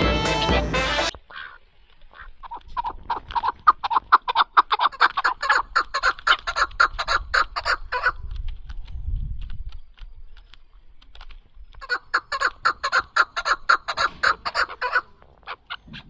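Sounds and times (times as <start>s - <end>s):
fowl clucking: 0.0s - 8.2s, 11.8s - 16.0s.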